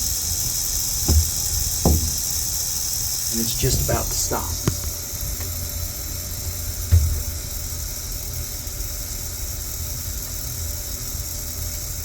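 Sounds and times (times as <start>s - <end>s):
valve vibrating hum: 0.0s - 12.0s
knock on valve: 1.0s - 2.6s.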